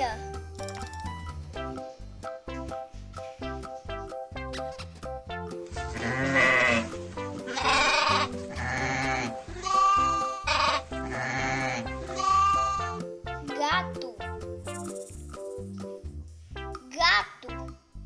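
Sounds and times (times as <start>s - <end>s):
light children's music: 0.0s - 18.0s
sheep bleating: 5.9s - 13.0s.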